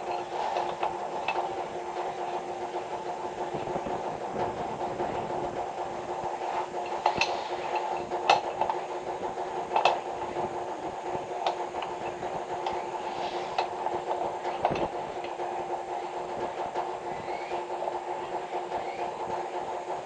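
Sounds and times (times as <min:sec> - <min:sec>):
sharp clicks and knocks: 0:00.0 - 0:20.0
small engine running: 0:00.0 - 0:20.0.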